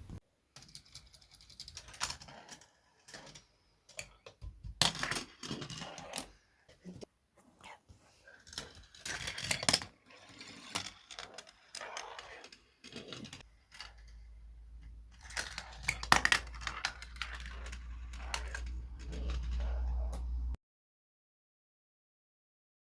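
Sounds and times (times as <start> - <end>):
marbles clicking on plastic track: 0.6 - 6.3, 8.4 - 20.4.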